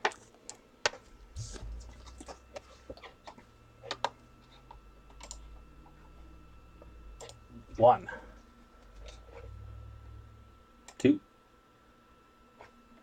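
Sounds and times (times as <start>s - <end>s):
faint low hum: 0.0s - 13.0s
thin steady tone: 1.1s - 11.2s
computer mouse clicking: 2.1s - 4.2s, 5.2s - 5.5s.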